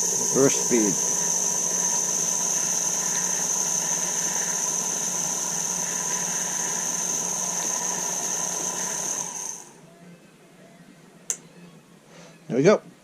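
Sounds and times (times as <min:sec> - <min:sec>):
lathe motor humming and whining: 0:00.0 - 0:09.9.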